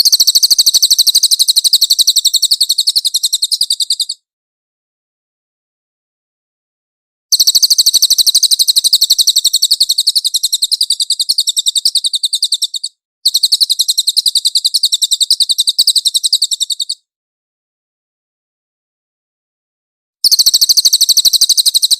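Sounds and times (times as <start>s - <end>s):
songbird high-pitched trill: 0.0s - 4.2s, 7.3s - 17.0s, 20.2s - 21.9s.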